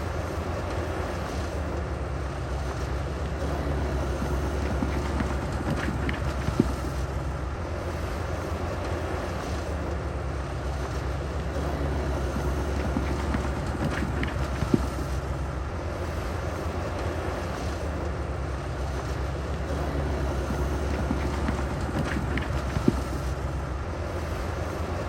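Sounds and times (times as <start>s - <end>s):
heavy diesel engine rumbling: 0.0s - 25.0s.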